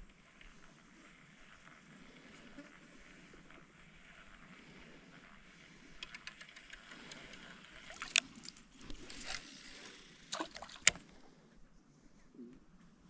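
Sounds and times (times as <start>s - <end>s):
water sloshing against boat: 7.8s - 11.1s.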